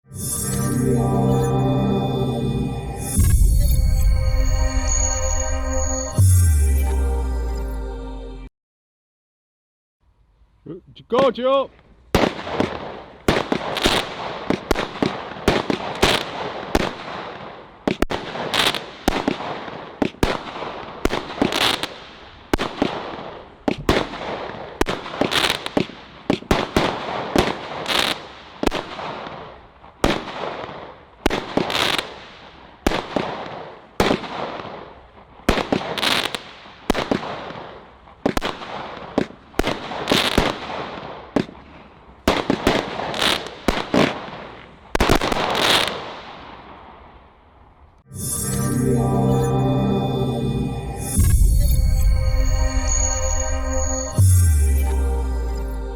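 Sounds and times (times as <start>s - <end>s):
firework bangs with hiss: 12.2s - 41.6s, 42.2s - 46.8s.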